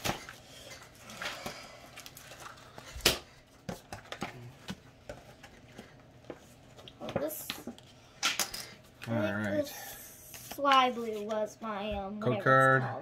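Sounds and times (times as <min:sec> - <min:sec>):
trading cards rustling: 0:00.0 - 0:09.6.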